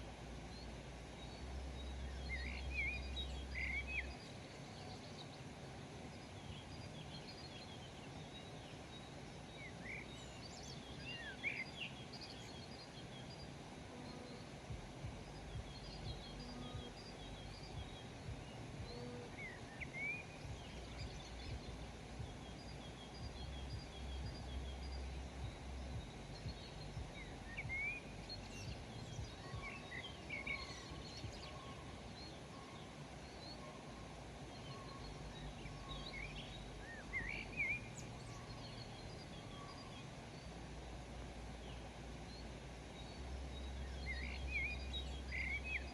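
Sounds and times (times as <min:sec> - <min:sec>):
faint steady hiss: 0:00.0 - 0:45.9
small birds chirping: 0:00.0 - 0:45.9
low rumble: 0:14.7 - 0:19.7, 0:20.3 - 0:29.6.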